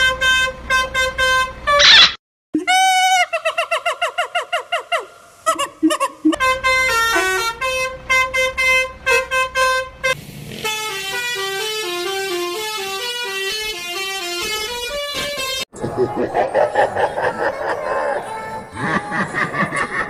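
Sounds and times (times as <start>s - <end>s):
multi-tone bus horn: 0.0s - 1.9s, 6.4s - 15.7s.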